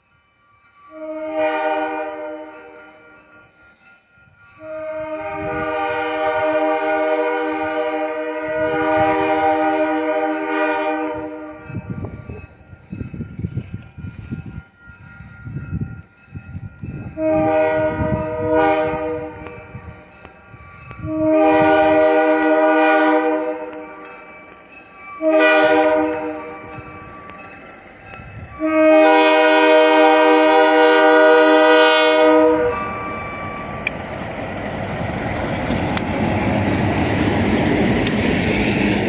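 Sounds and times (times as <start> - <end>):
locomotive air horn blasts: 0.9 - 3.4, 4.6 - 11.9, 17.1 - 20.1, 21.0 - 24.1, 25.2 - 26.8, 28.5 - 34.0
locomotive rumble approaching: 4.6 - 39.0.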